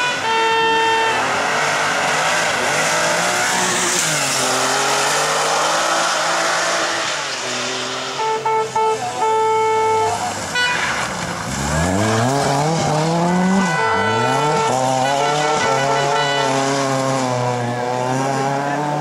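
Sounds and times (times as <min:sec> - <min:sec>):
steady horn tone: 0:00.0 - 0:01.6, 0:08.1 - 0:17.4
rally car engine accelerating: 0:01.1 - 0:08.2, 0:10.3 - 0:19.0.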